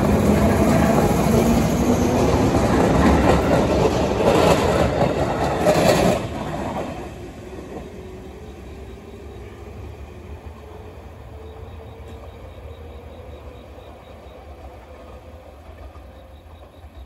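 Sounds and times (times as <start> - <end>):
electric train passing: 0.0 - 17.0
wheels clattering over rail joints: 2.1 - 8.0.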